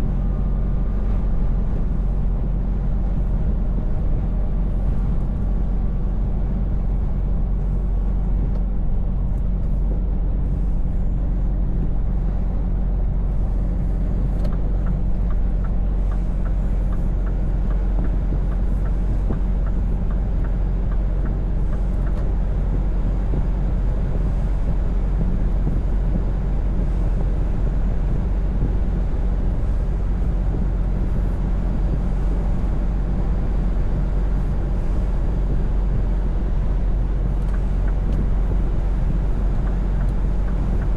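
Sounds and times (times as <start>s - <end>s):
diesel truck engine droning: 0.0s - 40.9s
road noise: 0.0s - 40.9s
faint regular ticking: 39.3s - 40.9s.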